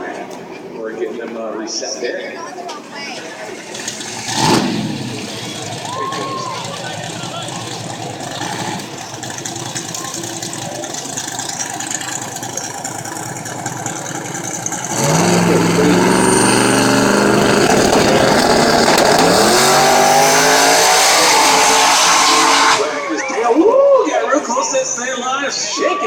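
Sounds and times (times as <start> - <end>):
drag race engine launching: 3.5 - 23.2.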